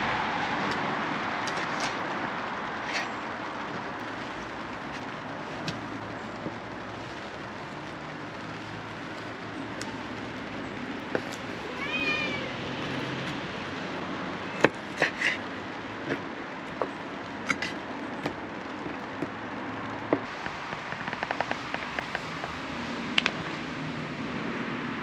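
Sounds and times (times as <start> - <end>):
cat meowing: 11.6 - 12.7
sharp clicks and knocks: 20.1 - 22.6.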